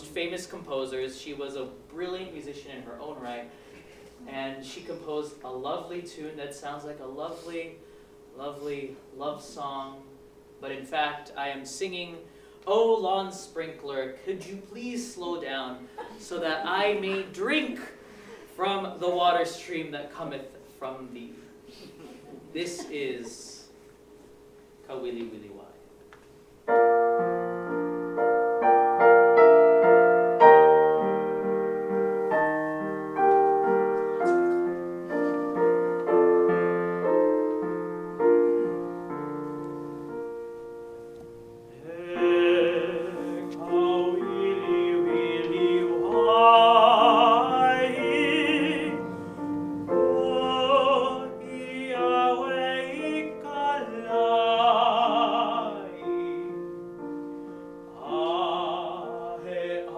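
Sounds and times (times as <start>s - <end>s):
solo piano: 26.6s - 59.9s
man singing with vibrato: 41.7s - 56.8s, 57.8s - 59.9s.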